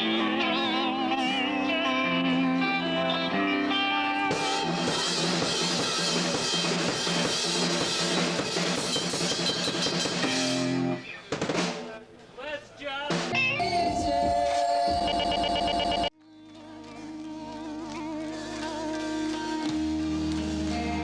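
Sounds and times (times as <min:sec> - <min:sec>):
rock guitar chords: 0:00.0 - 0:07.0, 0:13.2 - 0:16.1
drum kit with crashing cymbals: 0:04.3 - 0:12.0.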